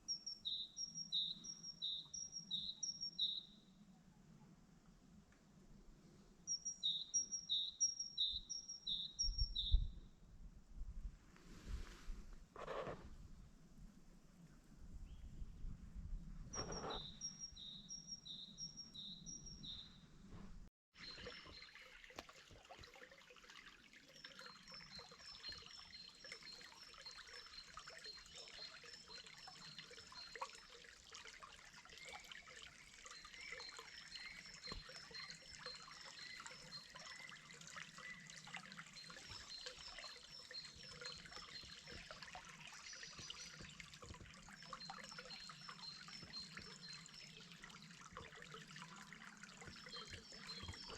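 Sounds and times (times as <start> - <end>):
trickle of running water: 16.5 - 19.8, 21.0 - 50.9.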